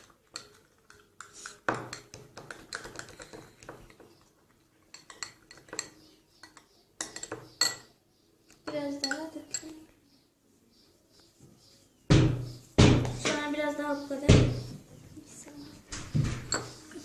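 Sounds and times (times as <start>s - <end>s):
spoon clinking and scraping bowl: 0.0s - 8.0s, 8.6s - 9.8s, 16.4s - 17.0s.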